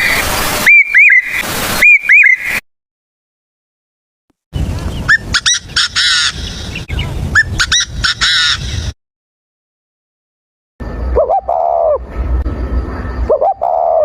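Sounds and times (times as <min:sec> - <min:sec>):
bird calling: 0:00.0 - 0:02.6, 0:04.9 - 0:09.0, 0:11.2 - 0:12.0, 0:13.3 - 0:14.0
harsh rasping bird call: 0:00.0 - 0:02.6, 0:05.1 - 0:08.9.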